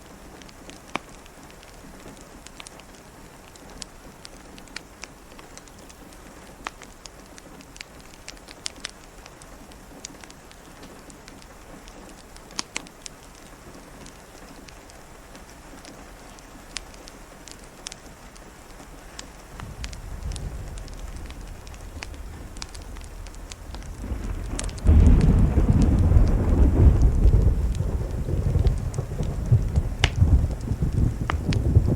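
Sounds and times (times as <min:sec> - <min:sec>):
steady rain: 0:00.0 - 0:31.9
wood fire crackling: 0:00.0 - 0:31.9
distant thunder rumble: 0:19.3 - 0:31.9.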